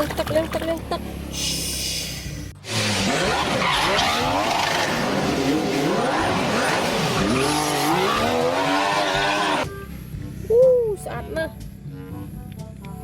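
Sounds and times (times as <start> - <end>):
racing car engines: 0.0 - 10.5
tyres squealing and skidding: 1.4 - 9.6.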